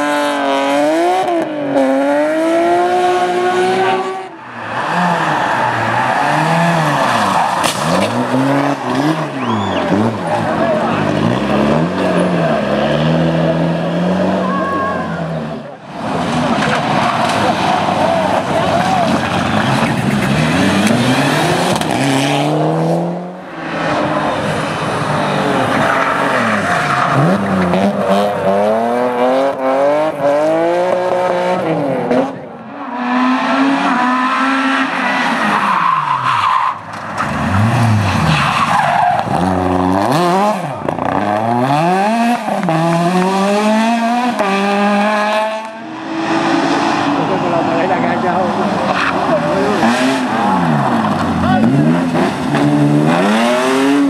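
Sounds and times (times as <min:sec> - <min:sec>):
rally car engines revving: 0:00.0 - 0:54.0
tyres squealing and skidding: 0:04.3 - 0:12.9, 0:14.0 - 0:22.1, 0:23.5 - 0:29.3, 0:32.7 - 0:41.3, 0:45.8 - 0:54.0.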